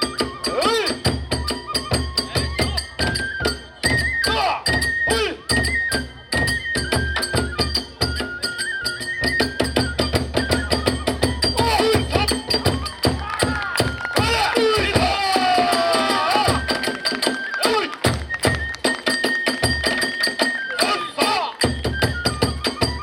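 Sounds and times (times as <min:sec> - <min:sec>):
bamboo flute melody: 0:00.0 - 0:23.0
taiko drum beating rapidly: 0:09.6 - 0:20.1.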